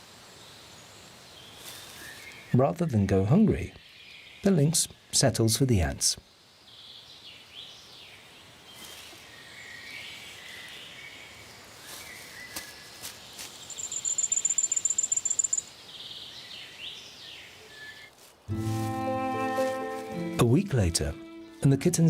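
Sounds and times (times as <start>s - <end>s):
small birds chirping: 0.4s - 5.2s, 6.2s - 18.2s
high-pitched bird trill: 13.8s - 15.7s.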